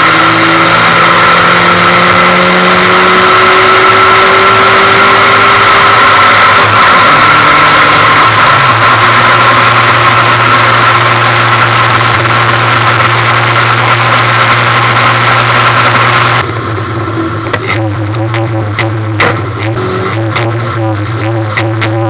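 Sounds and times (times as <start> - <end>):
car engine idling: 5.9 - 22.0.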